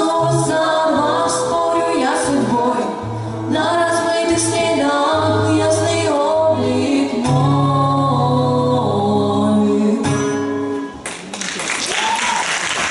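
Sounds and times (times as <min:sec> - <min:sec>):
voices singing in harmony: 0:00.0 - 0:10.2
acoustic guitar: 0:00.0 - 0:11.6
applause: 0:11.0 - 0:12.9.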